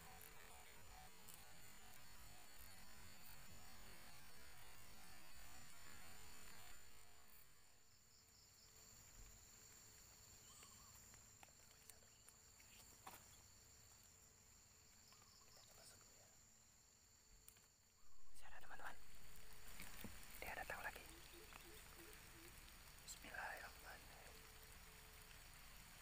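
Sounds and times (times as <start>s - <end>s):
insect chorus buzzing: 0.0s - 26.0s
soft hiss: 0.0s - 26.0s
faint ticks: 8.7s - 14.1s, 14.8s - 16.4s, 17.4s - 26.0s.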